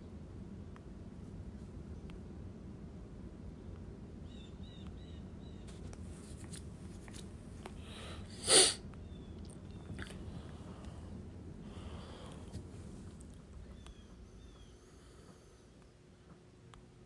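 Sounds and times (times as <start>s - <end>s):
faint low hum: 0.0s - 17.0s
sharp sneeze-like burst: 8.3s - 8.8s.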